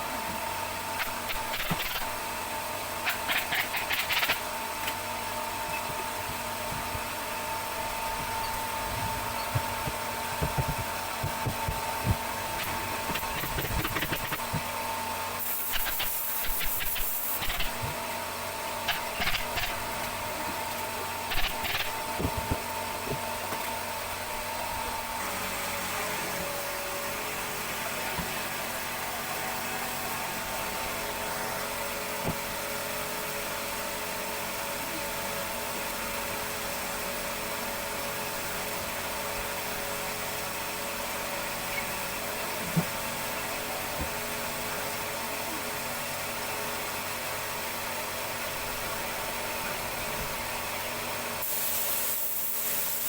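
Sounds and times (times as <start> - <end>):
motor-driven machine humming: 0.0 - 34.0.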